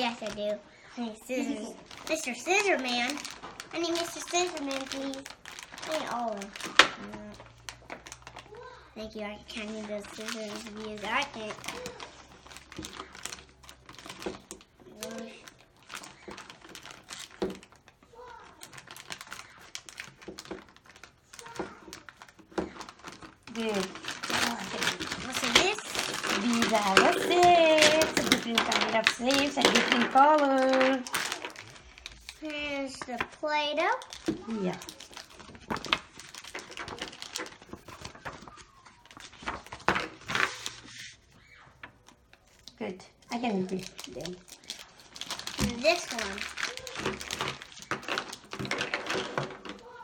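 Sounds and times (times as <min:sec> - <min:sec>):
packaging rustle: 0:00.0 - 0:50.0
plastic toys clicking and crinkling: 0:00.0 - 0:50.0.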